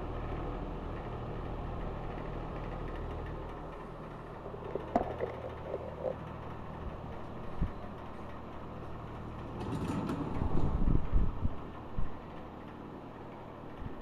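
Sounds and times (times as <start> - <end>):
light clatter: 1.0 - 14.0
box fan humming: 1.2 - 8.7.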